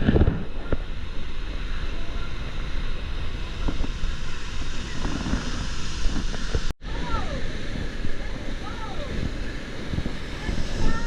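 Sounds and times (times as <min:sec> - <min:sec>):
rushing river water: 0:00.0 - 0:11.0
wind buffeting microphone: 0:00.0 - 0:11.0.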